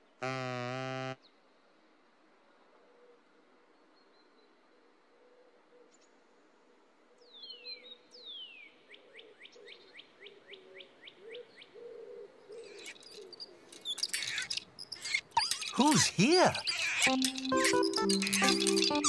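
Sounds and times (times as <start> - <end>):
short rising bird chirps: 13.8 - 19.0
clicks: 15.4 - 19.0.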